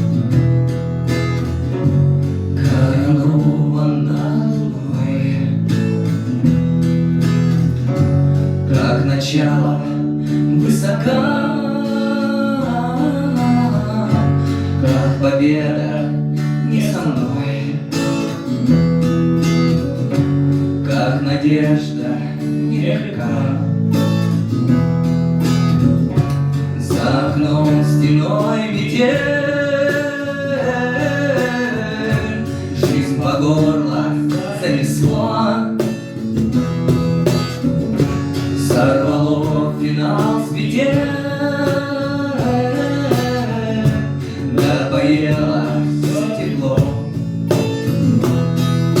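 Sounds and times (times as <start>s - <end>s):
strummed acoustic guitar: 0.0s - 49.0s
person singing: 8.7s - 17.9s, 26.8s - 36.2s, 38.6s - 47.2s.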